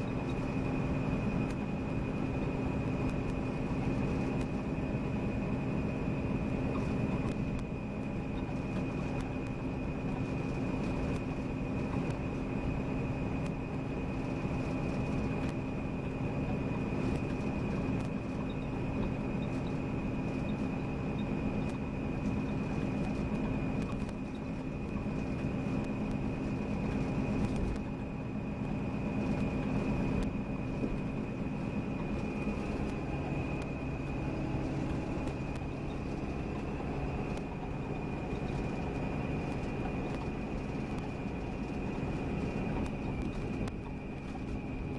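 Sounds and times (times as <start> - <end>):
coach engine drone: 0.0 - 44.9
thin high whine: 0.0 - 44.9
road noise: 16.7 - 44.9.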